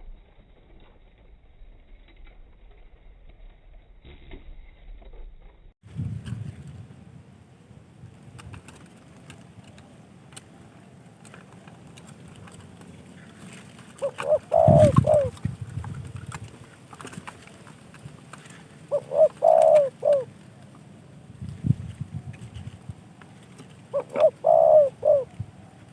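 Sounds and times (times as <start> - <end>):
dove cooing: 13.9 - 17.7, 18.4 - 20.4, 23.8 - 25.9.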